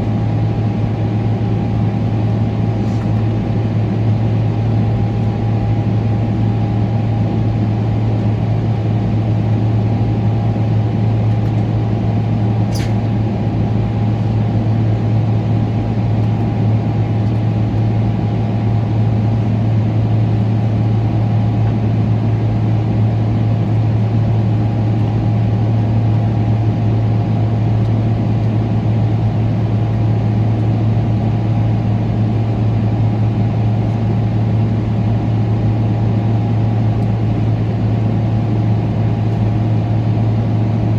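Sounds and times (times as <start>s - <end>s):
airplane cabin engine drone: 0.0s - 40.9s
brief click: 12.7s - 13.0s.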